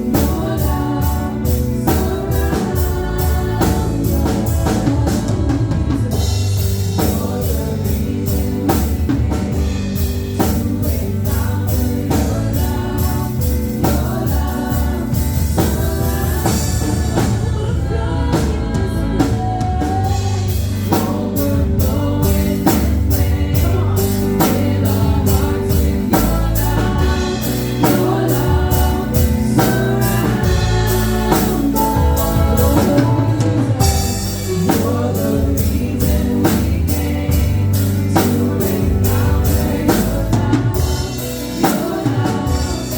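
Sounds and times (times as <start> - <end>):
band with drum kit and bass: 0.0 - 42.9
voices singing together: 0.0 - 42.9.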